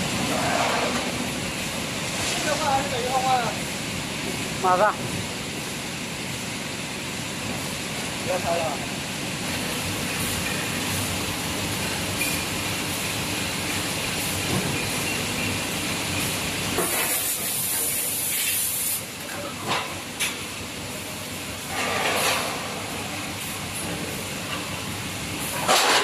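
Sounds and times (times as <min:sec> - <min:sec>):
die casting machine noise: 0:00.0 - 0:26.0
loud hissing bursts: 0:16.7 - 0:19.2.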